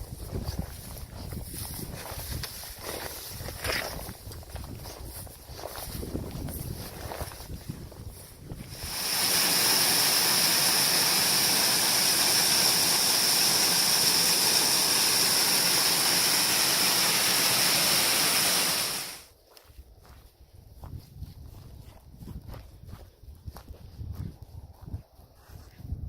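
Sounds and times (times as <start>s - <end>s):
rushing water: 8.7s - 19.2s.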